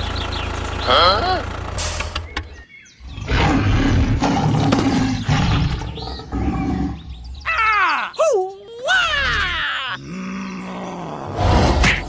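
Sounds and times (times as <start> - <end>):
loud rough roar: 3.0 - 6.8.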